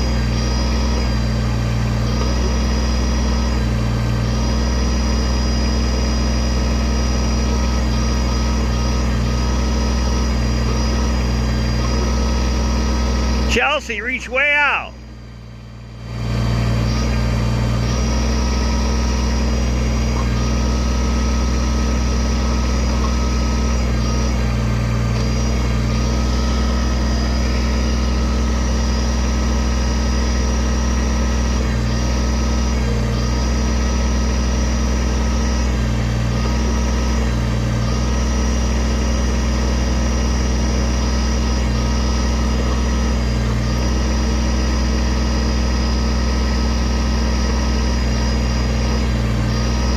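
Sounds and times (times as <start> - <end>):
high hydraulic whine: 0.0 - 49.9
tractor diesel engine running: 0.0 - 49.9.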